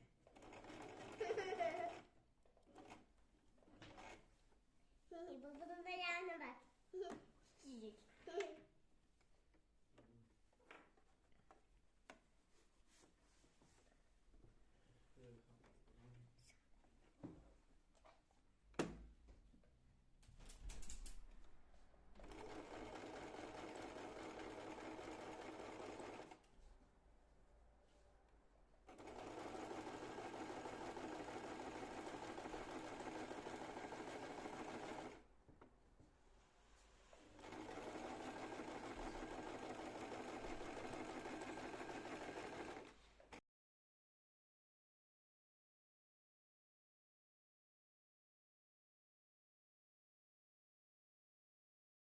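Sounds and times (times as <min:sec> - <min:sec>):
sewing machine stitching: 0:00.2 - 0:03.1, 0:03.7 - 0:04.3, 0:22.2 - 0:26.4, 0:28.9 - 0:35.2, 0:37.2 - 0:43.4.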